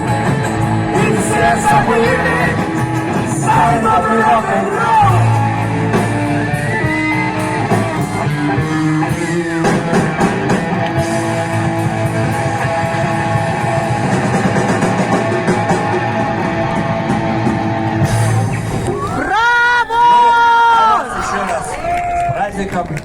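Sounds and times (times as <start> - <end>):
guitar chords and notes: 0.0 - 19.2
steady drum beat: 0.0 - 19.4
rock band playing: 0.0 - 20.3.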